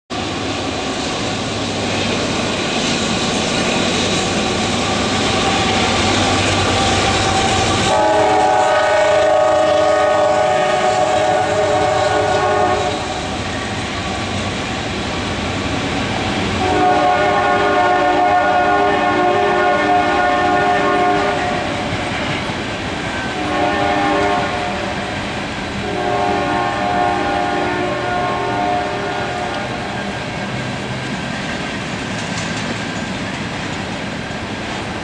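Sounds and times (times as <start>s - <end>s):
train rumble and rolling wheels: 0.1s - 35.0s
locomotive air horn chord: 4.8s - 13.3s, 16.6s - 22.0s, 23.2s - 25.2s, 25.8s - 30.3s.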